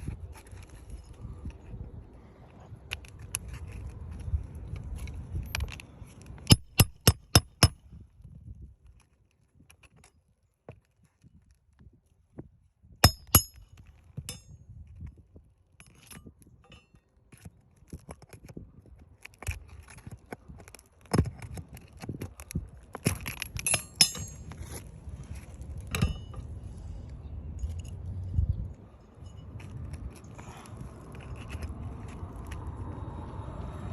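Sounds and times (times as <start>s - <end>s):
loud tool strikes: 13.0s - 13.6s
hand tools clinking on shingles: 13.0s - 14.8s, 19.8s - 26.6s.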